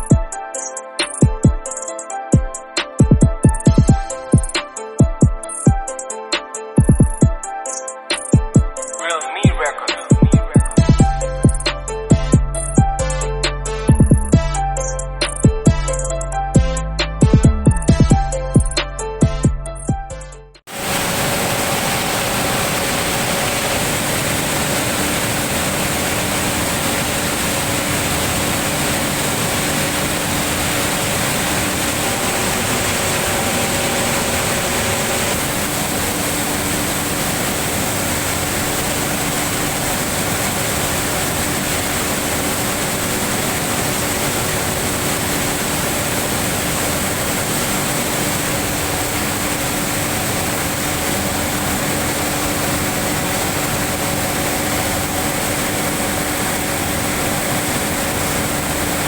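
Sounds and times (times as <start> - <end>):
steam venting from exhaust pipe: 20.7 - 59.0.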